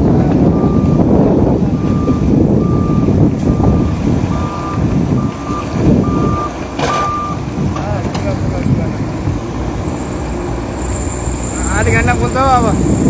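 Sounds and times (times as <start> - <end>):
diesel engine rumble: 0.0 - 13.0
back-up alarm beeping: 0.5 - 1.1, 1.8 - 7.4.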